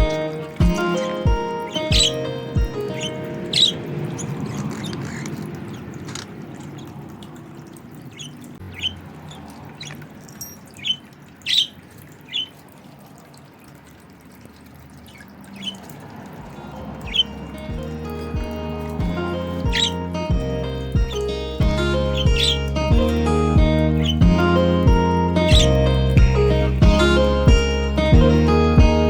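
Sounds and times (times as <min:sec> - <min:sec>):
budgerigar chirping: 0:00.0 - 0:07.0, 0:08.1 - 0:10.0, 0:10.7 - 0:12.6, 0:15.1 - 0:15.9, 0:17.1 - 0:18.6, 0:19.4 - 0:20.1, 0:21.0 - 0:23.2, 0:23.8 - 0:25.8.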